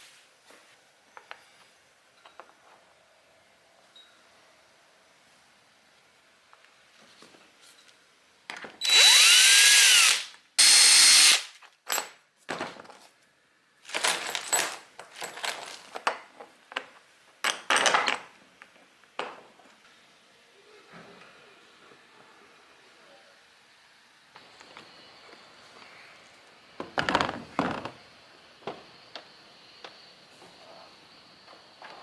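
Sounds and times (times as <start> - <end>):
power drill drilling: 8.8 - 11.5.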